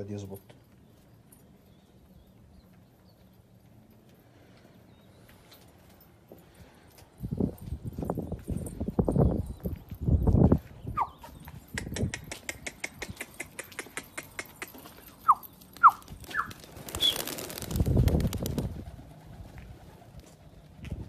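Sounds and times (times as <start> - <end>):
pigeon wings flapping: 15.7 - 21.0.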